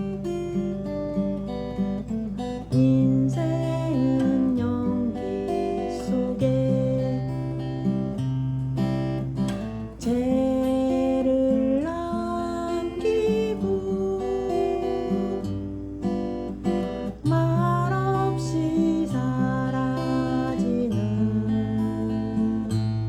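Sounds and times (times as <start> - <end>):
acoustic guitar strumming: 0.0 - 23.0
person singing: 2.5 - 8.0, 9.9 - 15.6, 17.2 - 23.0.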